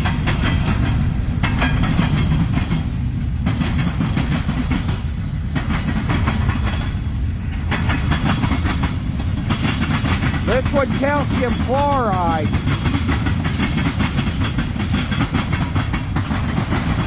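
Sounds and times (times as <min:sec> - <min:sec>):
wheels clicking over rail joints: 0:00.0 - 0:10.5, 0:12.5 - 0:17.0
freight train cars rumbling: 0:00.0 - 0:17.0.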